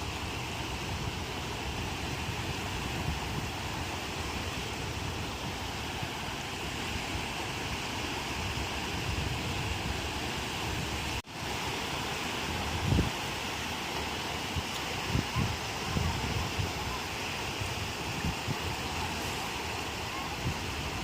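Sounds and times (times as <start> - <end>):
wind buffeting microphone: 0.0 - 11.2, 12.4 - 13.4, 14.4 - 21.0
ocean surf washing onto shore: 0.0 - 21.0.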